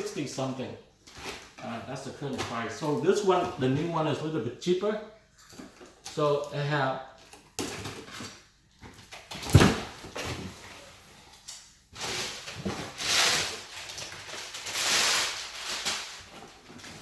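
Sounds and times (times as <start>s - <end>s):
cardboard rustling and scraping: 7.7s - 11.2s, 12.0s - 17.0s
cardboard box thump: 9.4s - 10.6s.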